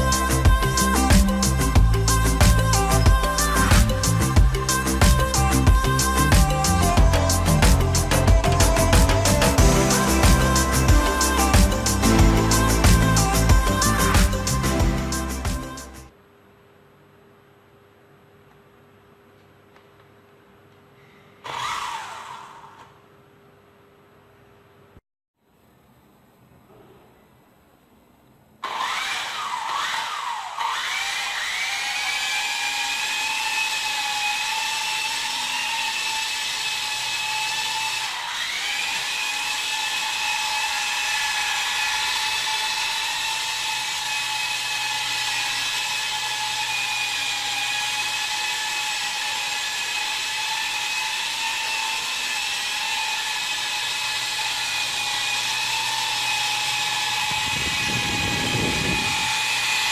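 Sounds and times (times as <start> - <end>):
toy helicopter motor whine: 21.4 - 22.8, 28.6 - 59.9.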